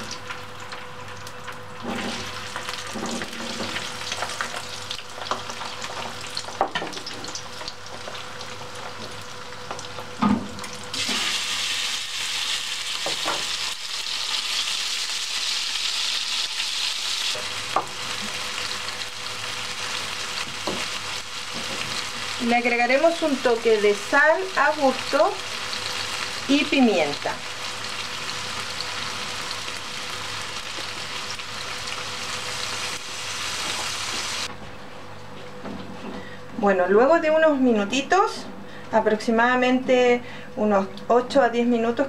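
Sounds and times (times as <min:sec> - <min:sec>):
potatoes sizzling in oil: 0:00.0 - 0:34.5
beef sizzling in hot pan: 0:01.8 - 0:34.5.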